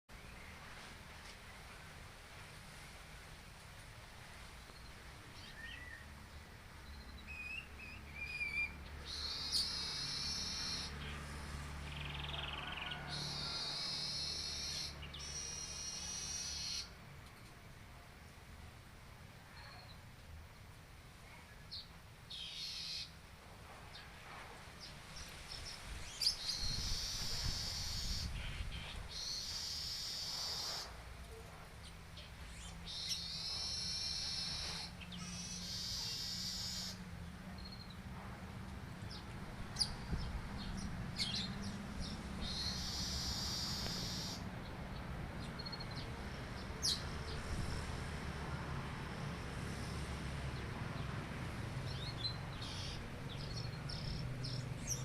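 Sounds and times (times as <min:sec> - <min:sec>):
bird twittering song: 0:04.7 - 0:11.2, 0:11.9 - 0:17.5, 0:21.5 - 0:23.2, 0:24.8 - 0:30.9, 0:31.8 - 0:37.0, 0:39.0 - 0:47.4, 0:51.9 - 0:55.0.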